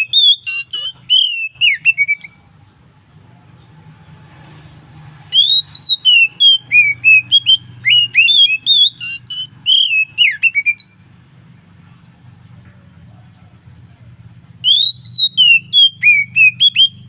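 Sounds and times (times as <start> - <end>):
bird singing whistled notes: 0.0 - 2.5, 5.3 - 11.2, 14.6 - 17.0.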